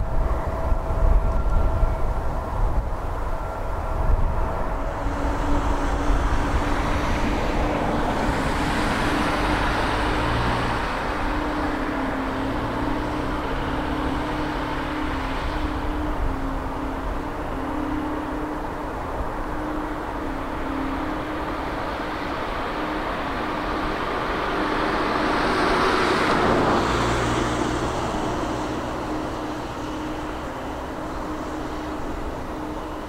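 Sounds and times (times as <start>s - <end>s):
airliner jet engines passing: 0.0s - 33.0s.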